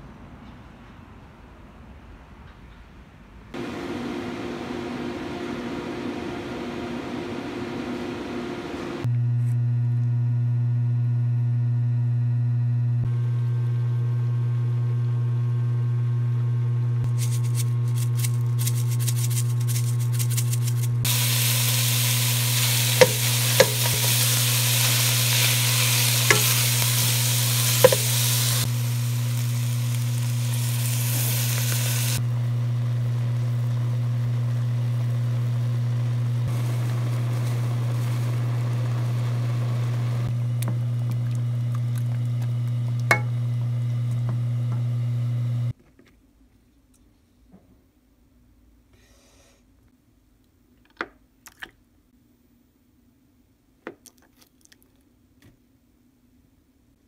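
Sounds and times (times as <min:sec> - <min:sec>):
steady low hum: 0:03.6 - 0:45.7
meat sizzling in a pot: 0:20.9 - 0:41.2
spoon knocking against pot: 0:23.0 - 0:24.1, 0:26.3 - 0:26.7, 0:27.8 - 0:28.2, 0:43.1 - 0:43.4.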